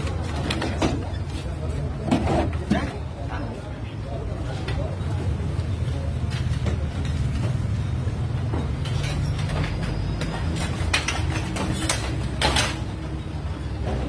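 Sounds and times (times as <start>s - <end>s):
metallic clanks and rattles: 8.4s - 13.2s.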